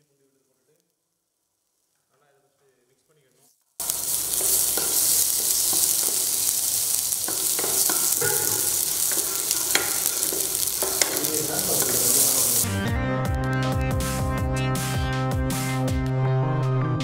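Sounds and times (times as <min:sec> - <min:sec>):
paste sizzling in hot oil: 0:03.8 - 0:12.8
wooden spoon scraping pan: 0:03.9 - 0:12.7.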